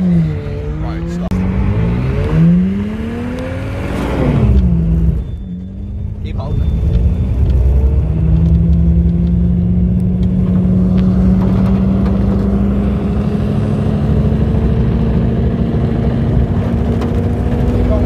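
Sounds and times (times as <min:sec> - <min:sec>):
car engine at high revs: 0:00.0 - 0:18.0
heavy low rumble: 0:04.2 - 0:18.0.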